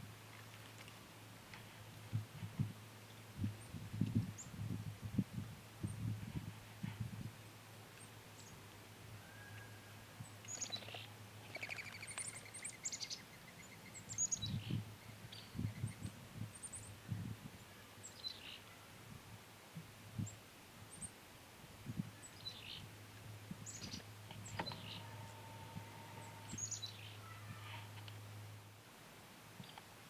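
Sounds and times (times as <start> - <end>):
songbirds chirping: 7.8 - 18.9, 20.2 - 28.6
steady low hum: 22.9 - 28.8.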